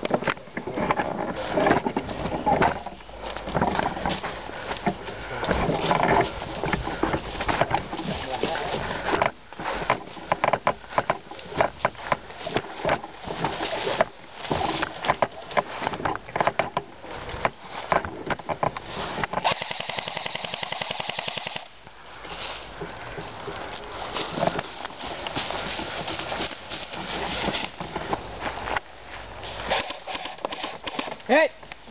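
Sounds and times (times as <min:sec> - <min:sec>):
sharp clicks and crackles: 0:00.0 - 0:21.7
airsoft gun full-auto burst: 0:19.4 - 0:21.7.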